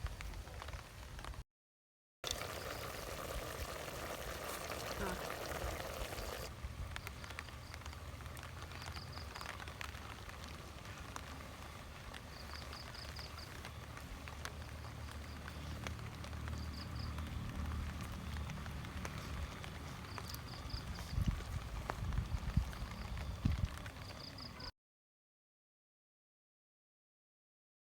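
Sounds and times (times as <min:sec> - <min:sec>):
rain drops tapping: 0:02.3 - 0:24.7.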